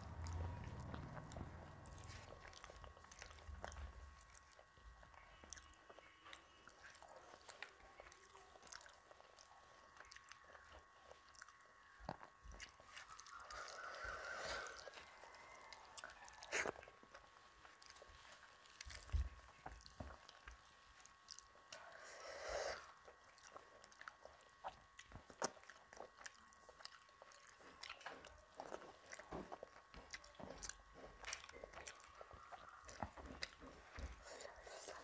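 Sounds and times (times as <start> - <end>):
soft chewing: 0.0 - 35.0.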